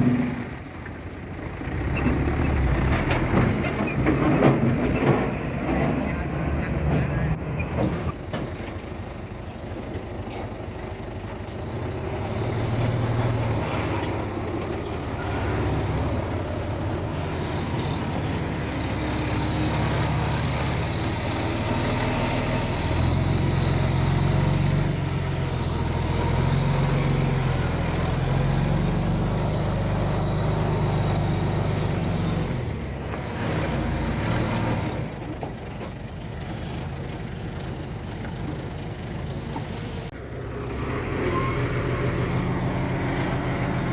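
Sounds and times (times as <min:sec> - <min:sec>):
heavy diesel engine working: 0:00.0 - 0:43.9
wavering high squeal: 0:41.2 - 0:42.0.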